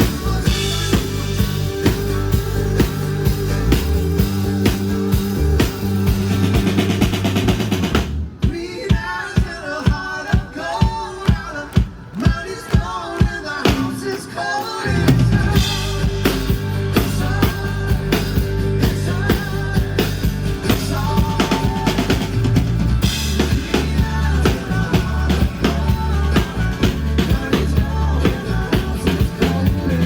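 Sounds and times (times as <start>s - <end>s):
bass line: 0.0s - 8.4s, 14.9s - 30.0s
drum kit beat: 0.0s - 30.0s
live band music: 0.0s - 30.0s.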